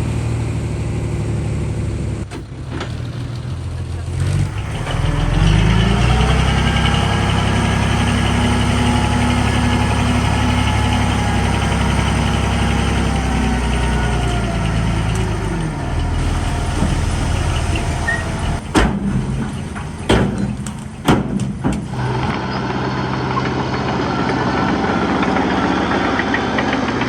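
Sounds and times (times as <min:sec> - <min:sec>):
heavy diesel engine running: 0:00.0 - 0:27.0
sharp knocks: 0:16.7 - 0:22.3.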